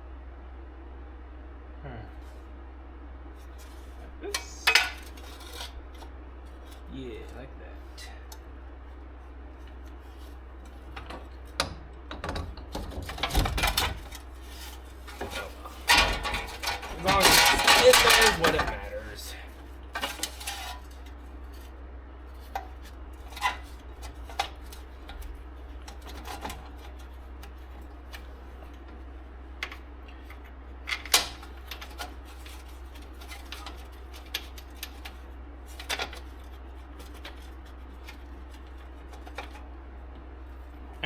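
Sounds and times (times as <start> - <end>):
steady low hum: 0.0 - 41.0
metal tools clinking: 15.2 - 19.1.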